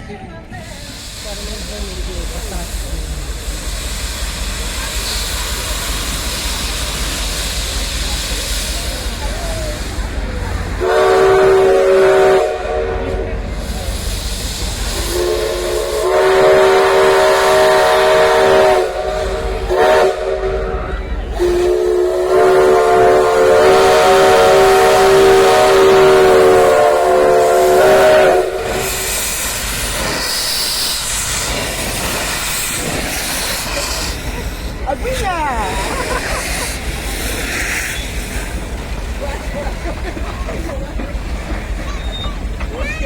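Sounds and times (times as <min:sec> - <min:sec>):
steam hissing: 0:00.4 - 0:43.0
steam whistle blasts: 0:10.8 - 0:13.3, 0:14.9 - 0:31.4.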